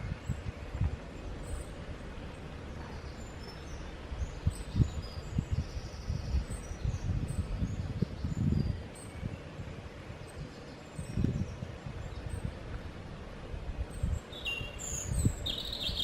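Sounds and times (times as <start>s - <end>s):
small birds chirping: 0.1s - 9.1s, 13.9s - 16.0s
buzzy bird trill: 14.0s - 16.0s.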